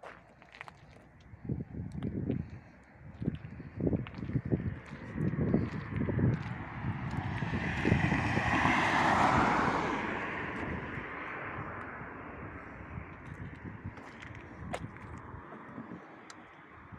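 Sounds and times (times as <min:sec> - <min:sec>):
vehicle passing by: 0:03.8 - 0:16.1.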